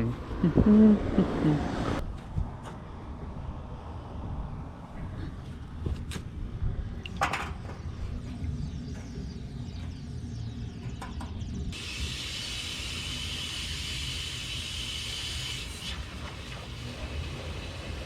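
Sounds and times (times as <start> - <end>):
compressed air hissing: 11.8 - 18.0.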